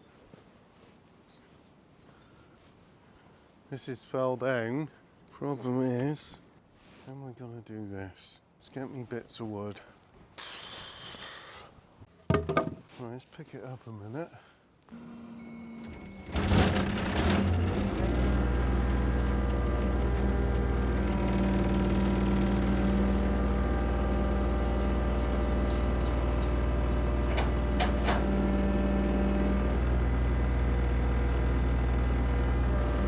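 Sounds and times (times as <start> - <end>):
engine starting and idling: 16.2 - 23.0, 24.5 - 29.9
short clicks or rattles: 24.5 - 28.4.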